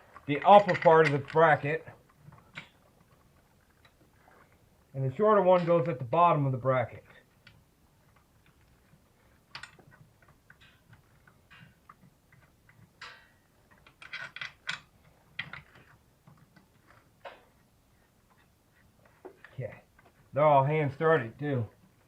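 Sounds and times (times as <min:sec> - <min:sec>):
metallic clicks of bolts threading: 0:00.0 - 0:02.8, 0:07.4 - 0:17.6.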